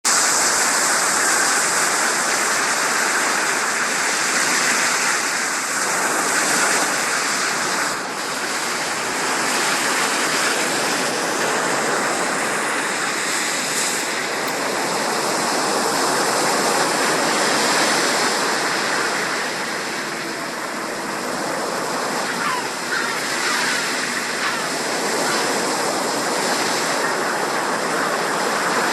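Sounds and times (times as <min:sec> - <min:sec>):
rushing water: 0:00.0 - 0:28.9.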